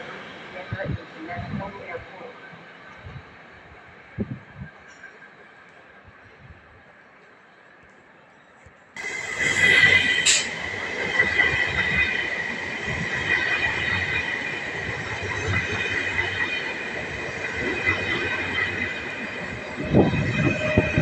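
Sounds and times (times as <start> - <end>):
train brakes squealing: 9.0 - 12.4, 17.8 - 21.0.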